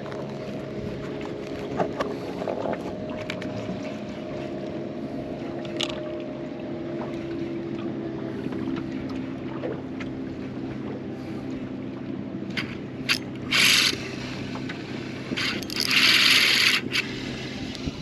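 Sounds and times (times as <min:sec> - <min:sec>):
fishing reel drag buzzing: 0:12.6 - 0:14.4, 0:15.2 - 0:17.6.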